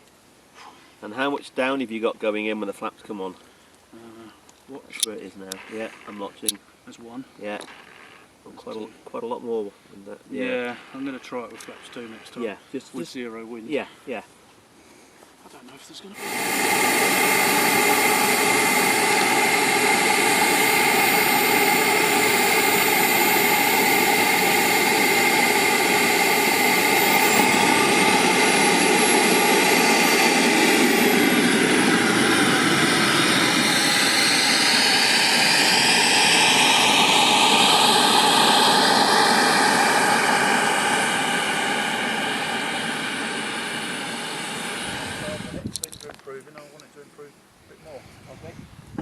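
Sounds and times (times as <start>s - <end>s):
model jet turbine roar and whine: 9.3s - 13.2s, 16.0s - 46.0s.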